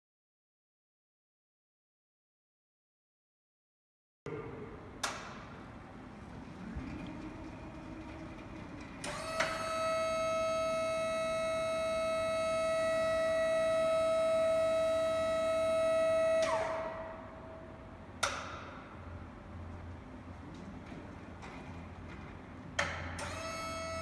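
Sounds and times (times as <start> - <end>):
high mechanical whine: 5.7 - 18.2.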